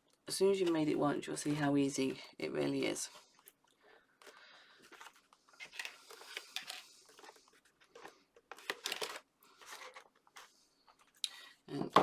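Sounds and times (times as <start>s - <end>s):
paper rustling: 4.2s - 11.2s.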